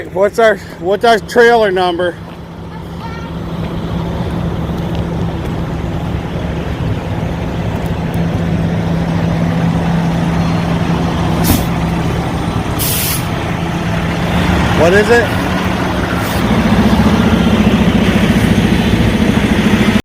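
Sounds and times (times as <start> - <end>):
truck diesel engine running: 0.0 - 20.0
air brake hiss: 11.4 - 11.7, 12.8 - 13.3.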